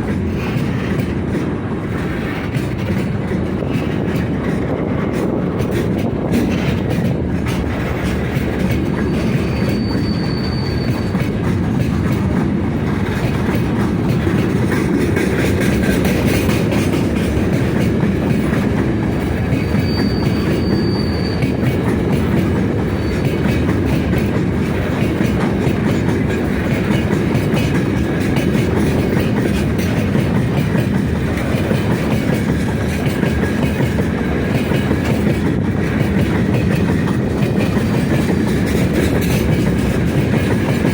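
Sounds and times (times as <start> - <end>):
train wheels clattering on rails: 0.0 - 40.9
train wheels squealing: 8.1 - 11.9, 19.1 - 25.3.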